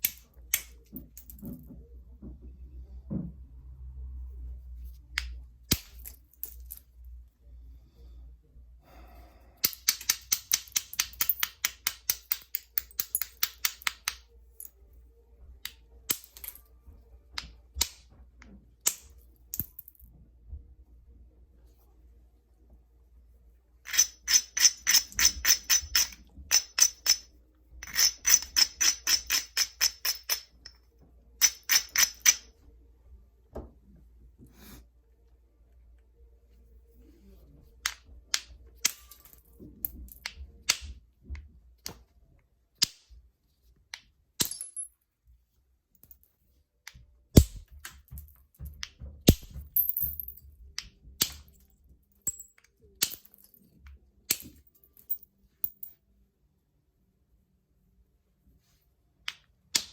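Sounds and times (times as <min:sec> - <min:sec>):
tool clicking on stone: 0:09.6 - 0:14.3, 0:23.9 - 0:30.8, 0:31.4 - 0:32.5, 0:46.9 - 0:50.2.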